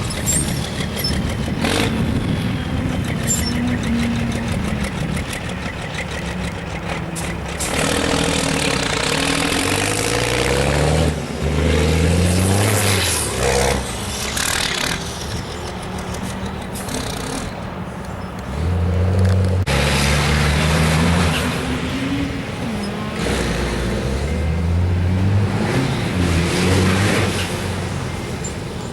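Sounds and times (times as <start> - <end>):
truck engine revving: 0.0 - 28.9.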